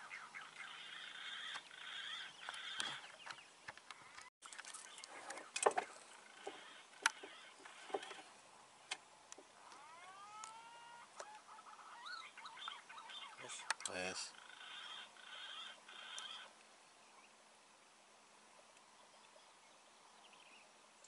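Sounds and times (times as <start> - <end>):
birds clicking and chirping: 0.0 - 16.7.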